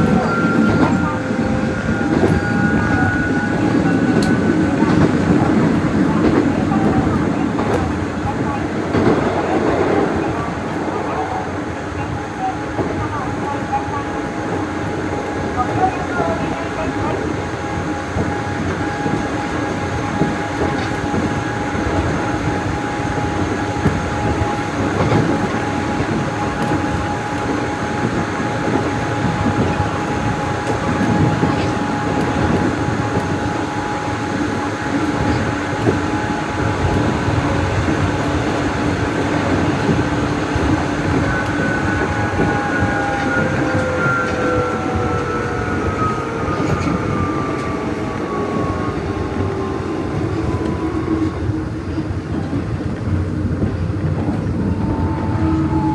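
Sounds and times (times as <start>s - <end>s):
electric train running: 12.8s - 55.9s.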